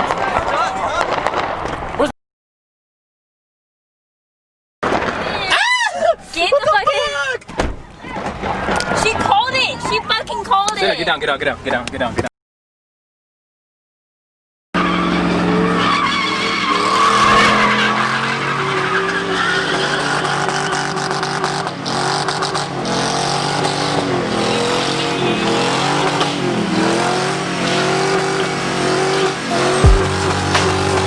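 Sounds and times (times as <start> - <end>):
truck engine revving: 14.8 - 31.0
tyres squealing: 14.8 - 31.0.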